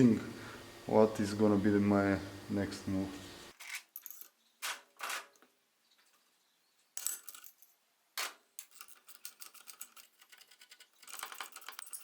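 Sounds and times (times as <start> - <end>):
metal tools clinking: 3.6 - 5.4, 7.0 - 12.0.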